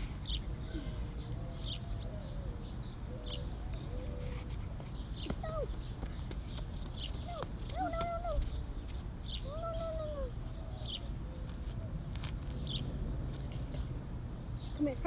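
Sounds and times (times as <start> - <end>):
bird chirping: 0.1 - 8.0, 10.4 - 11.6, 12.5 - 12.9
steady low rumble: 7.2 - 15.0.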